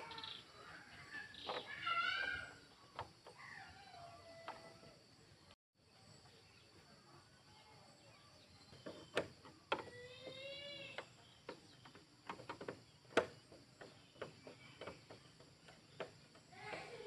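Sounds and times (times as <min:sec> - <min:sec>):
sharp knocks and clicks: 0:02.9 - 0:03.4, 0:08.7 - 0:10.4, 0:11.0 - 0:17.0.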